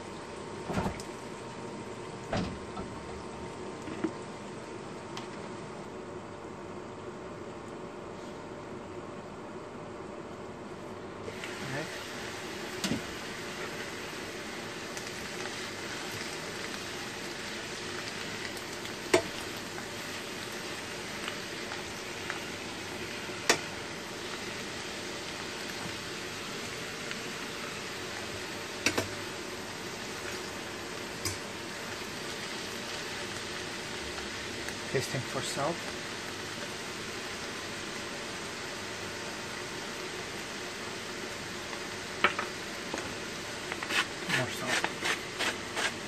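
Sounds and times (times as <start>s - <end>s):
food sizzling in a frying pan: 11.2s - 46.0s.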